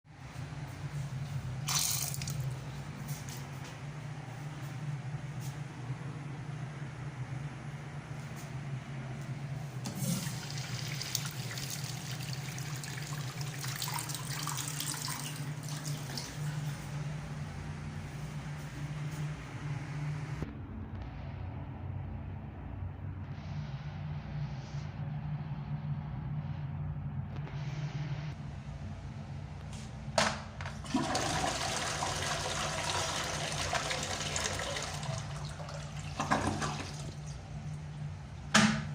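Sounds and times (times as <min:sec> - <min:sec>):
low steady hum: 0:00.1 - 0:38.9
faucet running into sink: 0:09.9 - 0:16.4, 0:30.9 - 0:37.4
water rushing in toilet: 0:09.9 - 0:16.6, 0:30.8 - 0:37.8.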